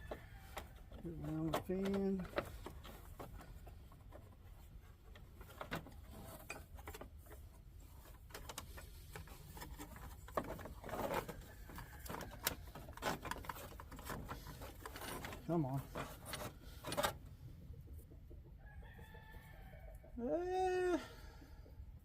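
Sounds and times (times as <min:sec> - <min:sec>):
rustling scrape: 0:01.1 - 0:17.4.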